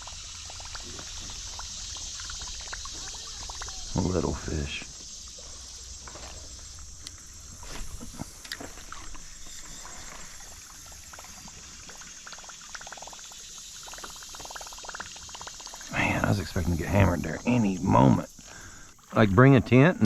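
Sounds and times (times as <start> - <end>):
water lapping and trickling: 0.0 - 20.0.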